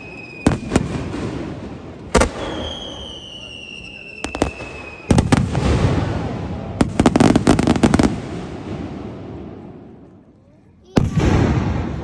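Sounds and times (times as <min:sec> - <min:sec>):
firework whistling: 0:00.0 - 0:01.4, 0:02.1 - 0:06.3
fireworks bangs and crackling: 0:00.0 - 0:10.3, 0:10.9 - 0:12.0.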